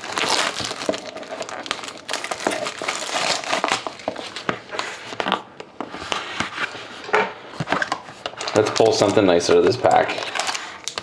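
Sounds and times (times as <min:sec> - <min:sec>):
packaging crinkling: 0:00.0 - 0:04.9, 0:07.8 - 0:11.0.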